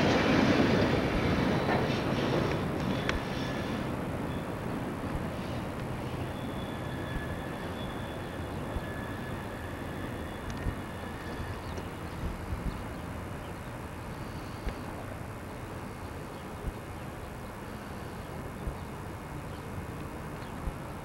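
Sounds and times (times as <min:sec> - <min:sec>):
freight train wheels rumbling: 0:00.0 - 0:13.2.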